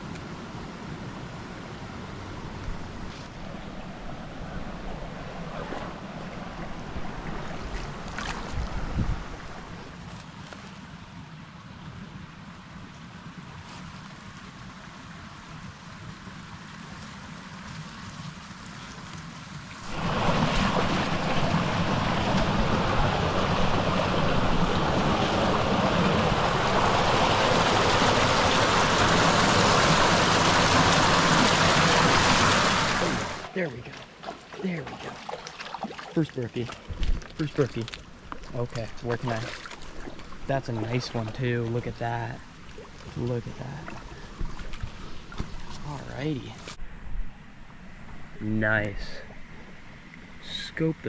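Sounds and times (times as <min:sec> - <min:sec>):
creek water and waterfalls rushing: 0:00.0 - 0:10.1, 0:10.8 - 0:46.7
wind rumble on microphone: 0:02.2 - 0:10.0, 0:36.8 - 0:37.4.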